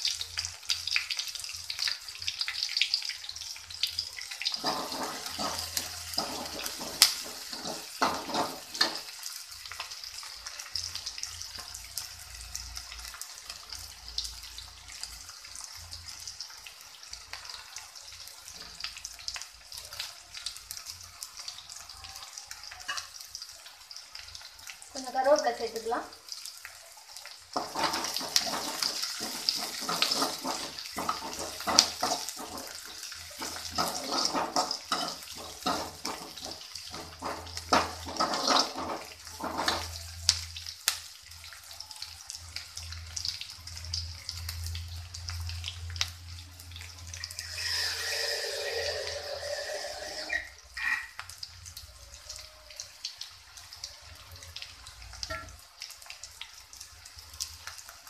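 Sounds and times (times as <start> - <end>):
food sizzling in hot oil: 0.0 - 58.0
ladle scraping pan: 4.6 - 9.0, 27.6 - 39.9, 47.4 - 51.0.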